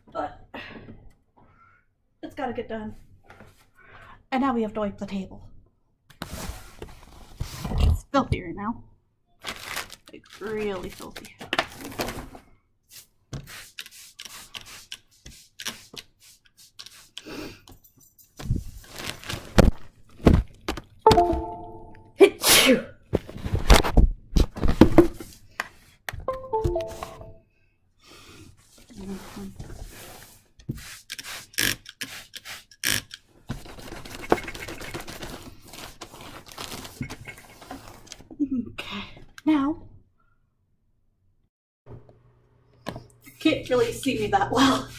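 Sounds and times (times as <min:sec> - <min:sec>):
wiping and rubbing a table: 0:12.9 - 0:17.3, 0:28.6 - 0:32.8, 0:33.5 - 0:38.2.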